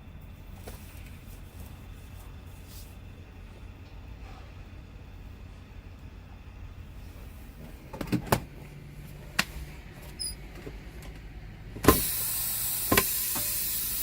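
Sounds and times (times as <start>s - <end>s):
air brake hissing: 11.9s - 14.0s.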